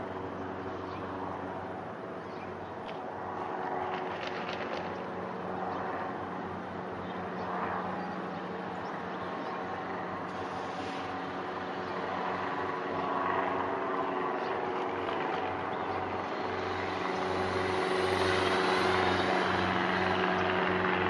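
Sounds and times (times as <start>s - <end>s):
distant aircraft engine droning: 0.0s - 21.0s.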